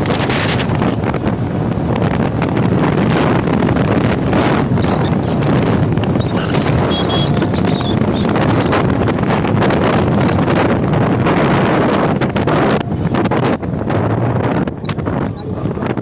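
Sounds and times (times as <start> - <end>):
high squeaks: 0.0 - 1.0, 4.7 - 9.0, 9.9 - 10.5
vehicle low rumble: 0.0 - 16.0
wind buffeting microphone: 0.0 - 16.0.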